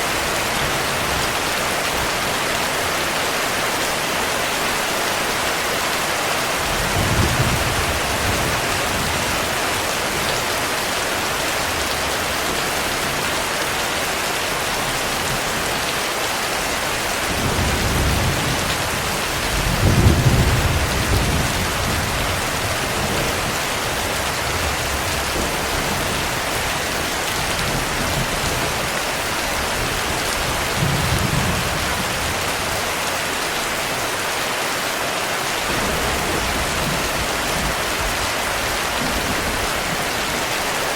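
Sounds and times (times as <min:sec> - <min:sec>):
heavy rain: 0:00.0 - 0:40.9
thunder rolling: 0:35.7 - 0:40.2.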